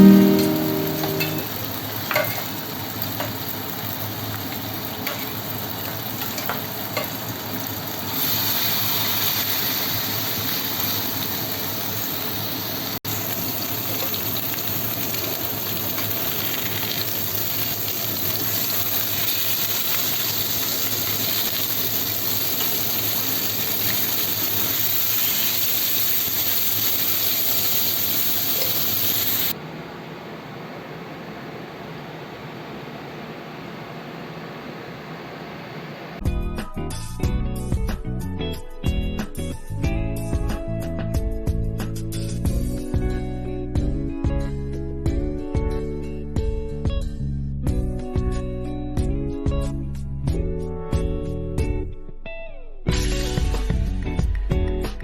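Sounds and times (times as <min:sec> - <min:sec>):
food sizzling in a pan: 0:00.0 - 0:29.6.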